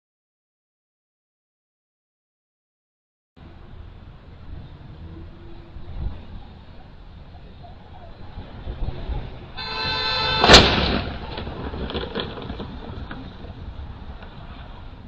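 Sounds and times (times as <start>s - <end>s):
road noise: 3.4s - 15.0s
car horn: 9.6s - 11.1s
vehicle collision crash: 10.1s - 12.9s.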